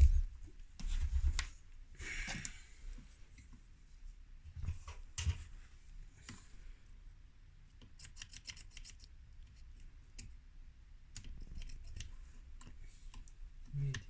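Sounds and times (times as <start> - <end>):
low steady hum: 0.0 - 8.0.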